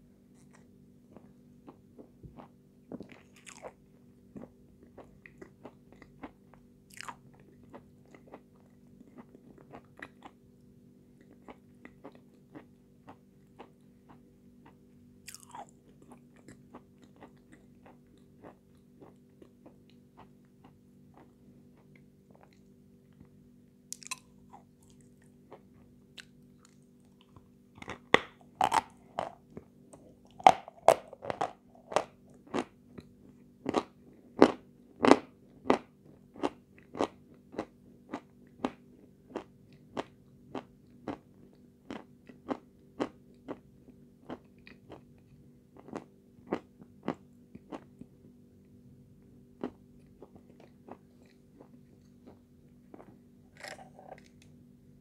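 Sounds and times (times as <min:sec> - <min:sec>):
faint steady hum: 0:00.0 - 0:55.0
crunchy chewing: 0:00.3 - 0:10.4, 0:11.2 - 0:23.2, 0:23.9 - 0:48.1, 0:49.6 - 0:54.5.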